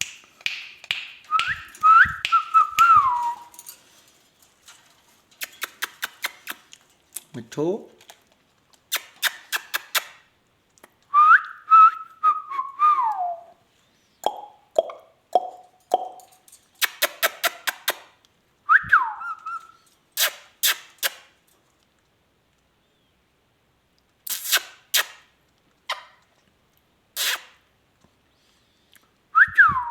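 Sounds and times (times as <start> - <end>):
parakeet clicks and chirps: 5.4 - 6.8, 8.9 - 10.2, 14.2 - 16.2, 16.8 - 18.0.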